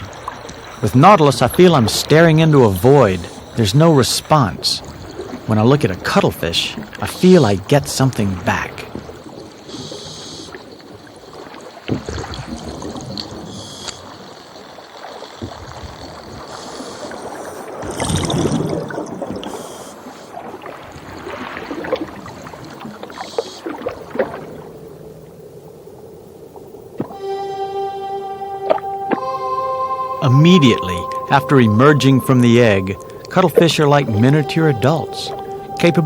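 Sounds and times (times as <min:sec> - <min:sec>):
underwater bubbling and gurgling: 0:00.0 - 0:27.2.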